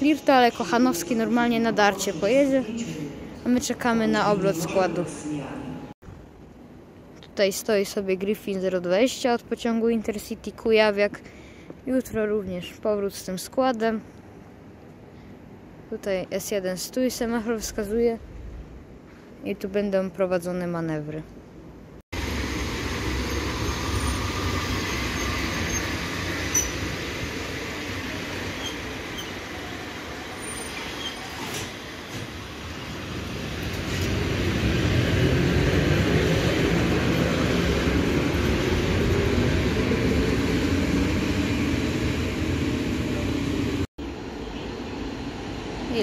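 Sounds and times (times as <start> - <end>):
train wheels rumbling on rails: 22.2 - 43.9.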